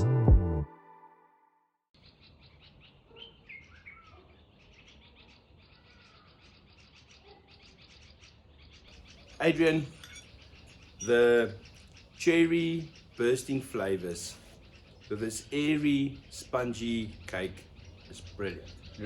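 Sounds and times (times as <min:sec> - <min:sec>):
background music: 0:00.0 - 0:01.6
birds chirping: 0:02.0 - 0:19.0.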